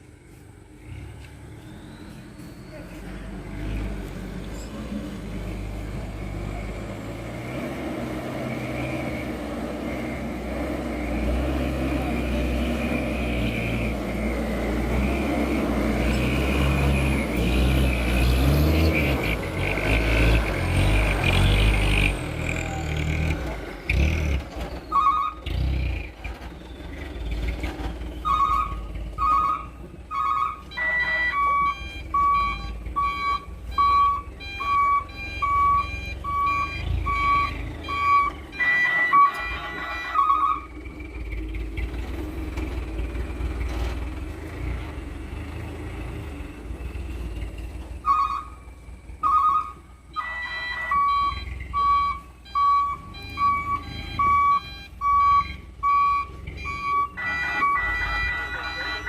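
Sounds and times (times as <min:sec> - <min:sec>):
diesel engine running: 0:00.0 - 0:59.0
reversing alarm beeping: 0:01.2 - 0:03.1, 0:28.3 - 0:41.0, 0:49.2 - 0:59.0.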